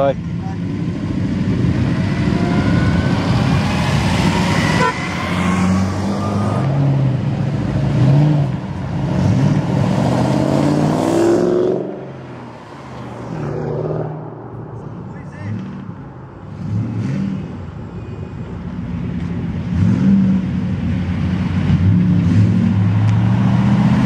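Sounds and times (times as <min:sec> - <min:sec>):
cars driving past: 0:00.0 - 0:24.0
car engine revving: 0:00.3 - 0:17.6.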